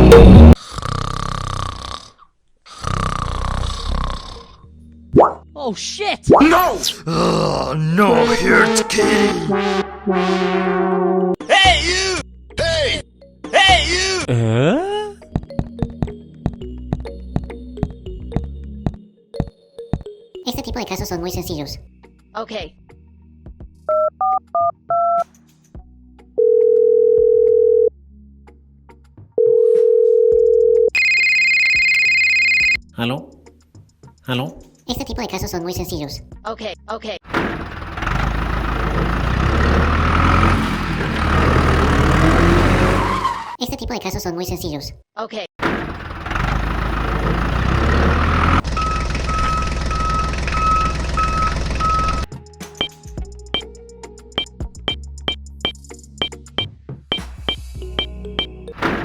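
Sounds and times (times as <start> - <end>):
heavy vehicle engine rumbling: 8.0 - 11.4, 37.3 - 43.4, 45.6 - 52.3
telephone ringback tone: 26.4 - 27.9, 29.4 - 32.8, 48.7 - 52.3
reversing alarm beeps: 31.0 - 32.8, 48.7 - 52.9
keypad tones: 48.7 - 53.0.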